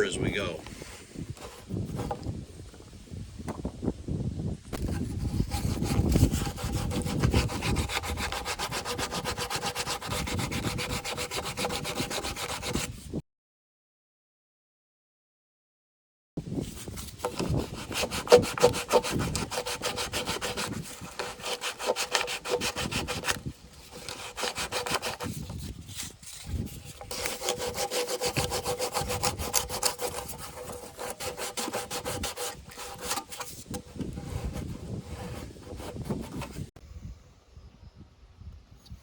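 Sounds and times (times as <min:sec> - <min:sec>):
sandpaper rubbing on plastic: 0:01.3 - 0:02.3, 0:04.8 - 0:13.1, 0:16.4 - 0:36.7.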